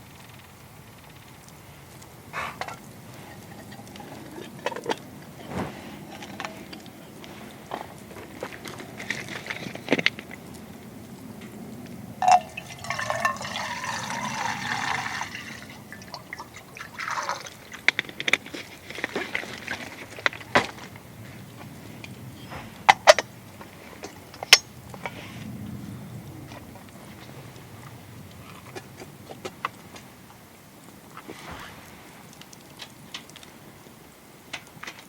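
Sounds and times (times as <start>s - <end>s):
liquid pouring into container: 12.2s - 20.2s.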